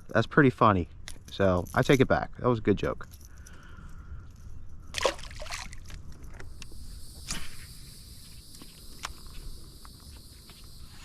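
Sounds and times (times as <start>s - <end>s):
insects buzzing: 3.2s - 11.0s.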